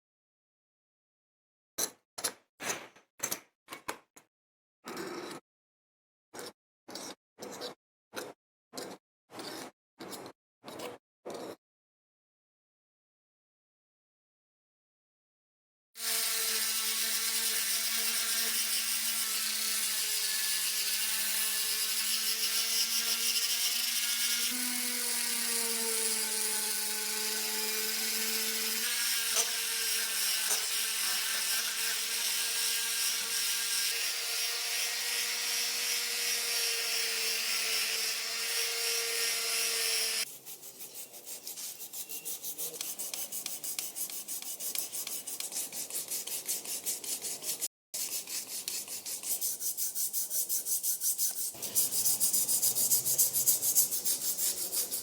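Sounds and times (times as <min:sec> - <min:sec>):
power tool grinding metal: 0:16.0 - 0:40.3
hand sanding strokes: 0:40.2 - 0:55.0.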